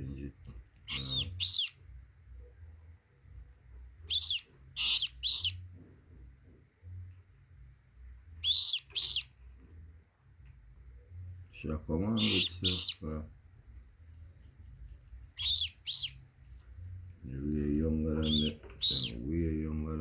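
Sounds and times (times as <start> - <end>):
parrot chicks shrill calls: 0.8 - 1.8, 4.1 - 5.6, 8.4 - 9.4, 12.1 - 13.0, 15.4 - 16.2, 18.2 - 19.2.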